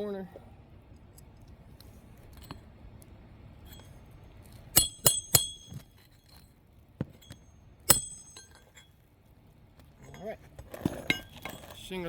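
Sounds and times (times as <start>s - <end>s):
hatchet striking roofing nail: 4.8s - 5.9s, 7.0s - 8.5s.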